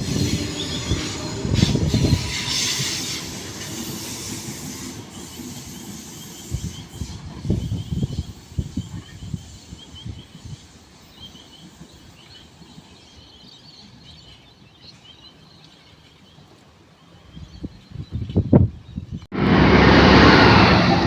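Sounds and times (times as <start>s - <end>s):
low gusty rumble: 17.4s - 21.0s.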